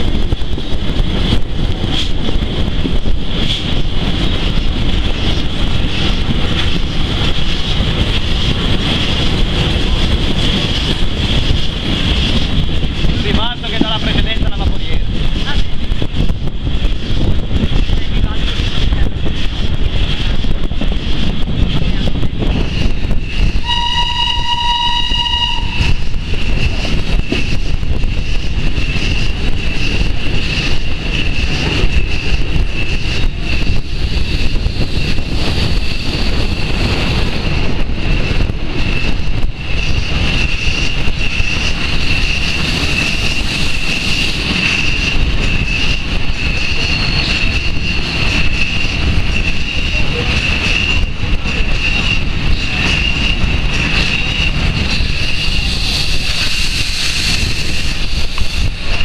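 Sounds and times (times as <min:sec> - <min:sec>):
train rolling rumble: 0:00.0 - 0:59.0
high whine: 0:21.8 - 0:36.6
train whistle: 0:23.6 - 0:26.0.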